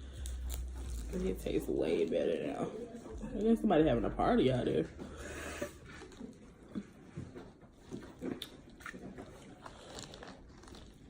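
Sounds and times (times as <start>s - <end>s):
chewing and mouth sounds: 0.0s - 1.7s, 4.9s - 11.0s.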